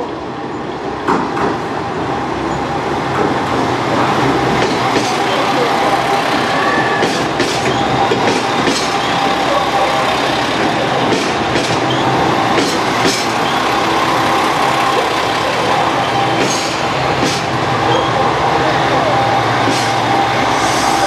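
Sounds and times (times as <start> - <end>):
train rolling past: 0.0 - 21.0
wheels clacking over rail joints: 2.5 - 18.1.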